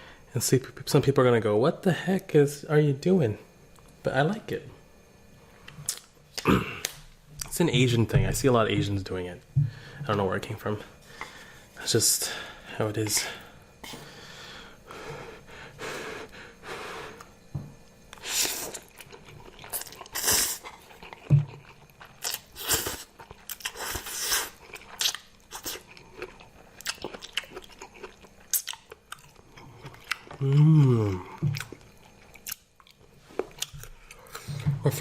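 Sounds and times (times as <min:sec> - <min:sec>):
chewing and crunching food: 0:17.2 - 0:35.0.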